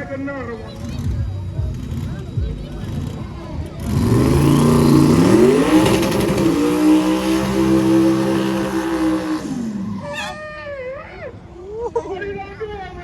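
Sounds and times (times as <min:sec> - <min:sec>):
car engine accelerating: 0:00.0 - 0:10.4.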